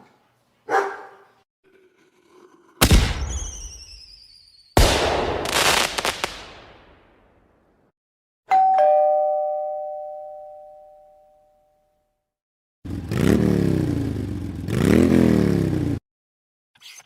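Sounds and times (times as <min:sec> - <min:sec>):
bang with falling whistle: 0:02.9 - 0:04.8
two-note doorbell chime: 0:08.5 - 0:12.1.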